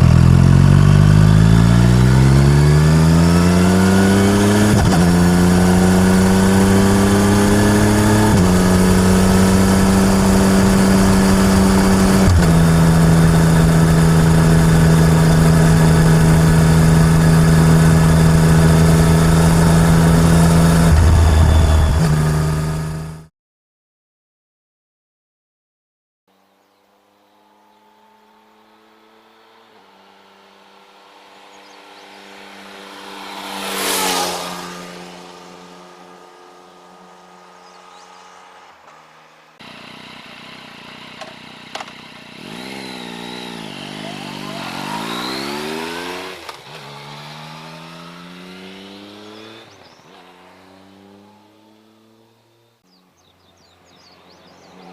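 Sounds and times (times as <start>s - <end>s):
motorcycle exhaust revving: 0.0s - 23.3s, 39.6s - 50.0s
motorcycle riding past: 0.0s - 23.3s, 27.0s - 54.9s.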